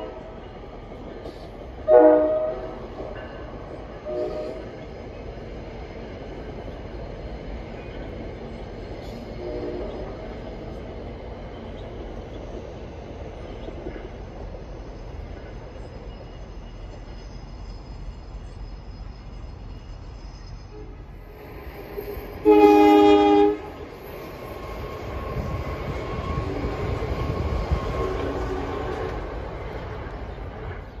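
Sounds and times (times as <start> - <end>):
train horn: 0.0 - 0.6, 1.8 - 3.0, 3.9 - 4.8, 9.3 - 10.2, 20.7 - 21.4, 22.4 - 24.0, 24.9 - 29.4
train rumbling over bridge: 0.0 - 31.0.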